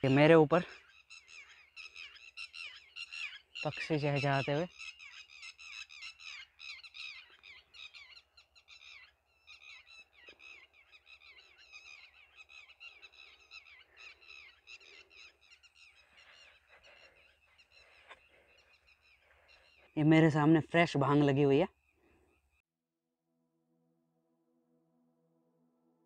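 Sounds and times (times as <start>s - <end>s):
birds chirping: 0.0s - 22.6s.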